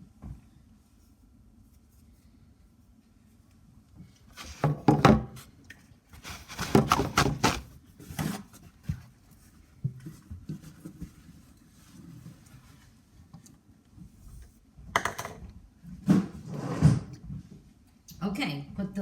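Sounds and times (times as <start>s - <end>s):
scooper scraping a container: 4.4s - 5.0s, 6.2s - 7.7s.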